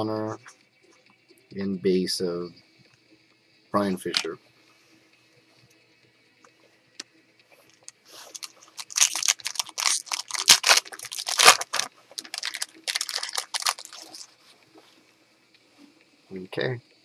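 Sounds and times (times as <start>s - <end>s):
foil wrapper tearing and crinkling: 7.7s - 14.3s.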